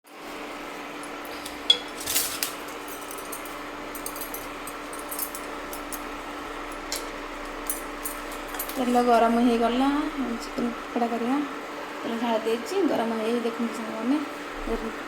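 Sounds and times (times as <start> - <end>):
steady low hum: 0.2 - 15.0
metal utensils clinking: 1.0 - 6.1, 6.7 - 9.2.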